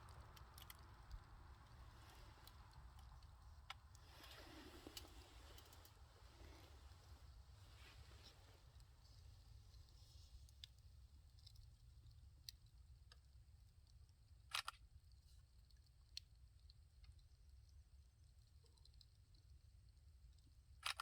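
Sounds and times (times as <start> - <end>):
wood fire crackling: 0.0 - 14.2
low steady rumble: 0.0 - 20.8.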